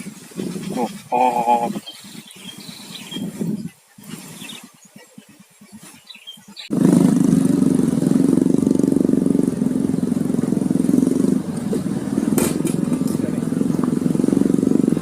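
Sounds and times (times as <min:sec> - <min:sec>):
small engine running steadily: 0:06.5 - 0:15.0.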